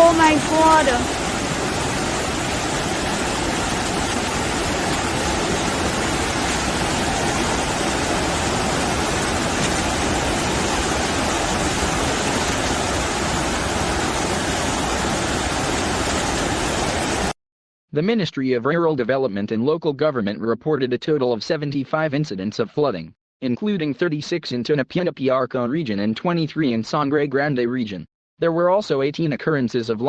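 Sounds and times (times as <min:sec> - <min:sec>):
floodwater rushing: 0:00.0 - 0:17.4.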